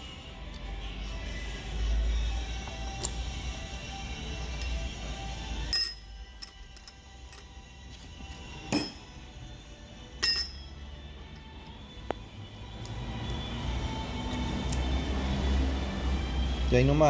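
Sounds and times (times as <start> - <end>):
metal strikes with high ringing: 8.7 - 9.1, 10.2 - 10.7.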